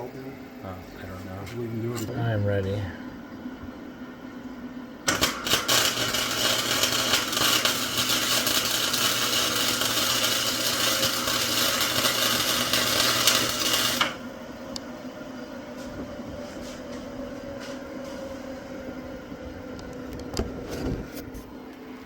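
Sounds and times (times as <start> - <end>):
welder humming: 0.0 - 22.0
welding arc crackling: 5.0 - 14.2.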